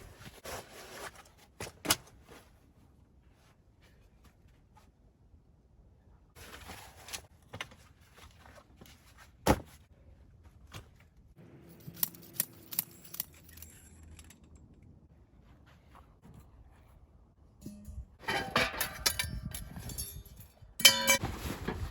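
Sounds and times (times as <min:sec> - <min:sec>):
light metallic clinks: 0:17.6 - 0:21.2.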